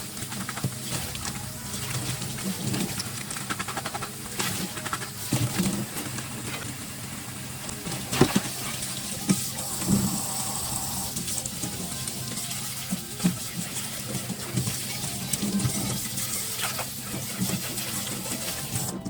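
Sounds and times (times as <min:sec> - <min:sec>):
low steady hum: 0:00.0 - 0:11.6.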